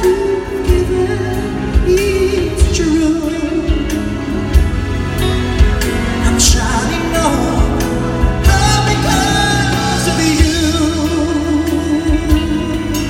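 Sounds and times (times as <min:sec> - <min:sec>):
band with drums: 0:00.0 - 0:13.0
person singing pop ballad: 0:00.0 - 0:13.0.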